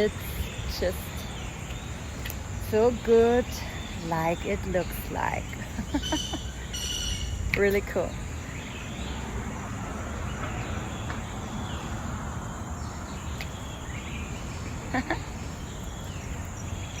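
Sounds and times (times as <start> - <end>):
bird chirps: 3.0 - 9.3, 12.8 - 17.0.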